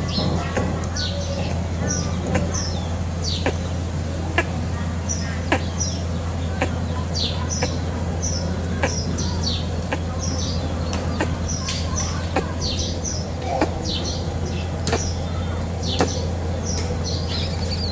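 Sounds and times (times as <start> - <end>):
small birds chirping: 0.0 - 17.9
sharp clicks: 10.9 - 12.8.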